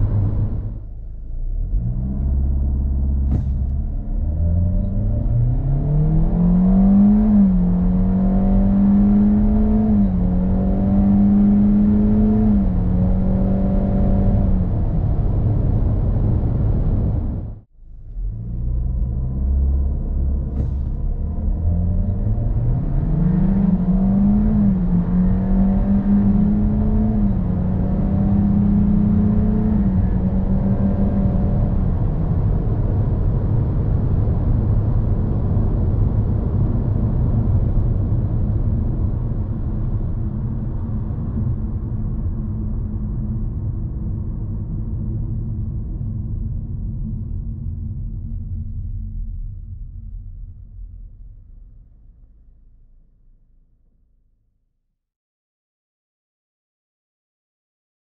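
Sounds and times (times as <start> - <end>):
road noise: 0.0 - 43.0
car engine accelerating: 0.0 - 46.1.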